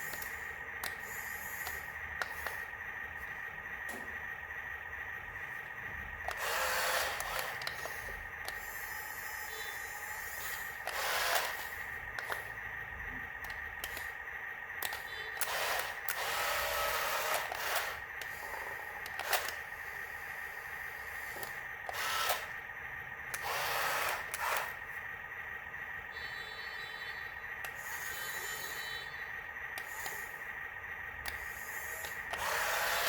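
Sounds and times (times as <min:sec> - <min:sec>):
toy gear motor whining: 0:00.0 - 0:02.7, 0:06.2 - 0:12.6, 0:13.4 - 0:14.2, 0:14.8 - 0:22.6, 0:23.3 - 0:24.9, 0:27.6 - 0:29.2, 0:29.8 - 0:30.5, 0:31.2 - 0:33.0.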